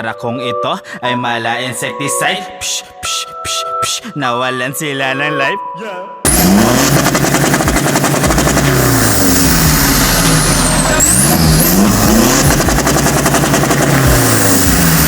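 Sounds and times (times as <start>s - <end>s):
car engines revving: 6.3s - 15.0s.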